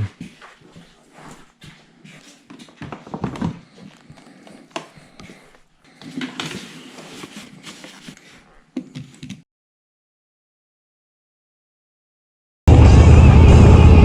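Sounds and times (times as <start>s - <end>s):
footsteps: 0.0s - 9.1s.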